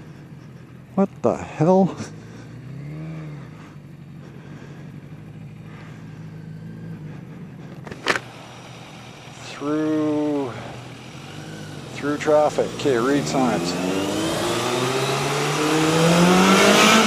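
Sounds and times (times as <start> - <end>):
motorcycle engine running: 0.0 - 17.0
sharp click: 7.8 - 8.3.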